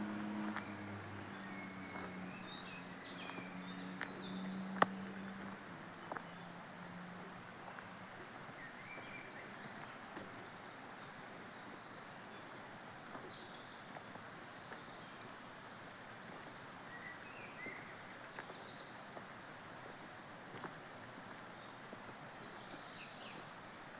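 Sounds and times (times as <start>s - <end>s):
light ticks: 0.4s - 0.7s, 4.8s - 6.3s.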